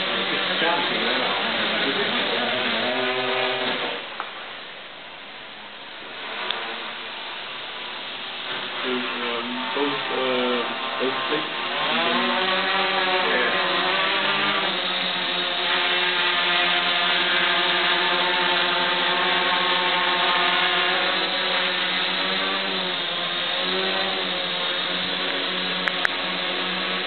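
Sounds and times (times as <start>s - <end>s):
drone rotors buzzing: 0.0s - 4.8s, 5.5s - 27.0s.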